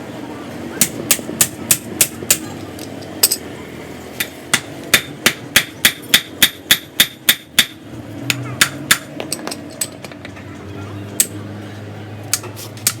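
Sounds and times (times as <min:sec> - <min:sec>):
hammer striking metal: 0:00.8 - 0:02.4, 0:04.2 - 0:09.9, 0:11.2 - 0:11.4.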